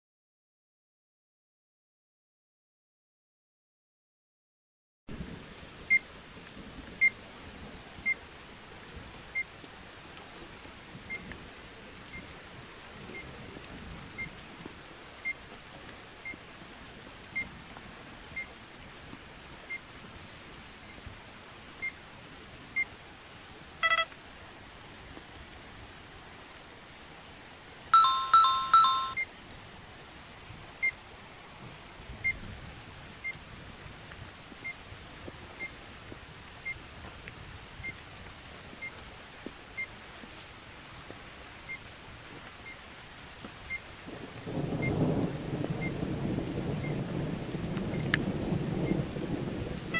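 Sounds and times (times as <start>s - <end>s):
short high electronic beeps: 28.0s - 29.2s.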